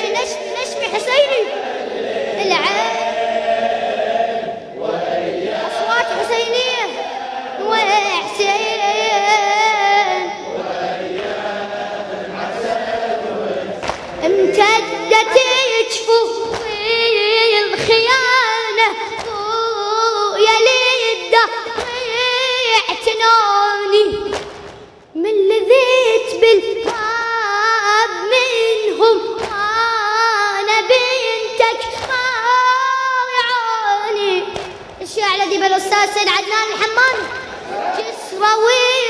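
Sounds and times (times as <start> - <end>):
high voice chanting: 4.4 - 24.4.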